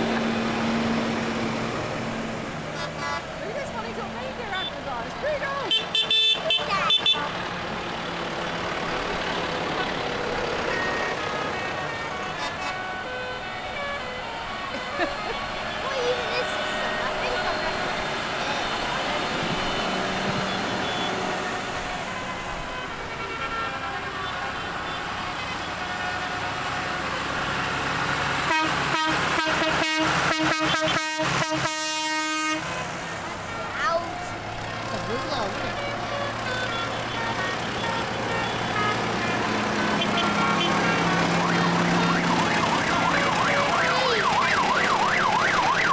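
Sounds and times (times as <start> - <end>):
tractor engines droning: 0.0 - 45.9
vehicle horn blasts: 2.7 - 7.8, 9.7 - 26.4, 28.4 - 34.0, 35.4 - 42.3.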